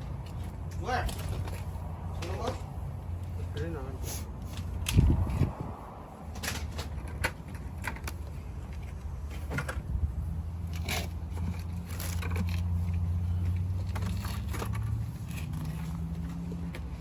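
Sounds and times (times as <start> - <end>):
clicks and scrapes of handling: 10.6 - 17.0.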